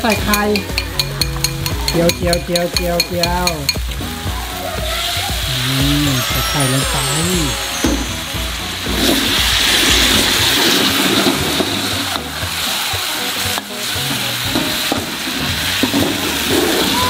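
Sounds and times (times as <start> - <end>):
metal spatula stirring noodles: 0.0 - 3.8
egg sizzling in a wok: 0.0 - 17.0.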